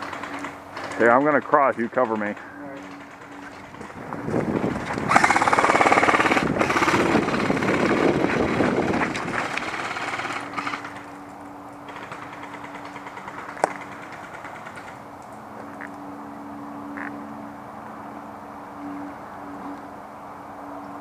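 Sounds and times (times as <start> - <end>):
airsoft gun full-auto bursts: 5.1 - 8.7.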